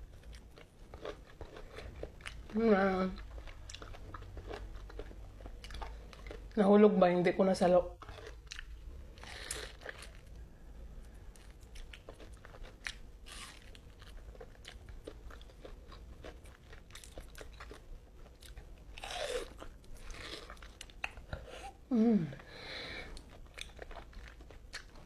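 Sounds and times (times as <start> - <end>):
person biting and chewing fruit: 8.0 - 10.3, 11.0 - 21.8, 23.1 - 25.0.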